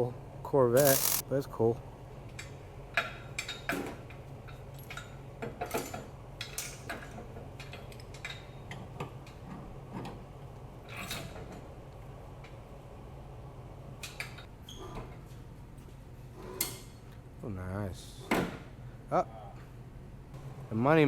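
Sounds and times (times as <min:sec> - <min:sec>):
metallic clicks and ticks: 0:00.8 - 0:01.2.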